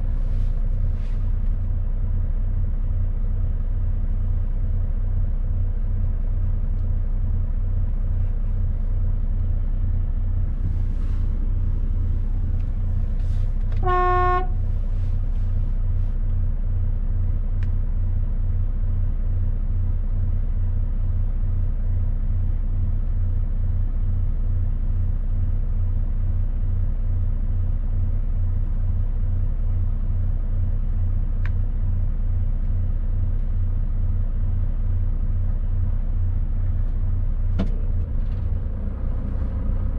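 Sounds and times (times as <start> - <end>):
truck diesel engine droning: 7.0 - 16.2, 34.2 - 39.9
horn toot: 13.7 - 14.7.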